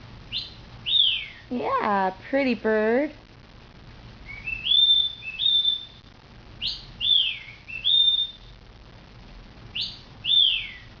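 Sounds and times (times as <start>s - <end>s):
cockatiel whistling: 0.3s - 1.4s, 4.2s - 8.6s, 9.7s - 10.9s.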